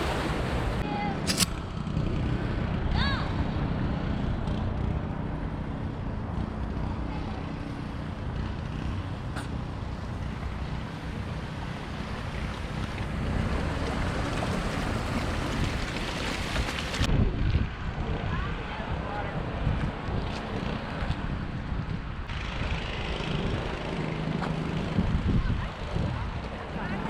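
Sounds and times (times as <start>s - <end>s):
sharp click: 1.2s - 1.6s
choppy wind buffeting: 12.0s - 27.0s
wind rushing over microphone: 12.4s - 27.0s.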